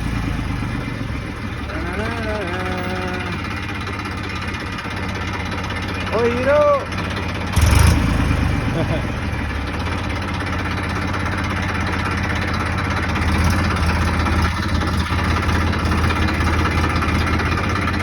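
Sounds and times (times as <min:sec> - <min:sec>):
tractor engine idling: 0:00.0 - 0:18.0.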